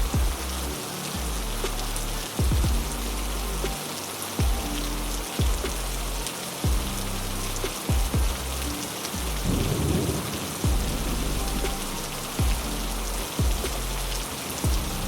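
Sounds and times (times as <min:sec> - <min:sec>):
heavy rain: 0:00.0 - 0:15.0
low rumble of thunder: 0:09.3 - 0:14.1.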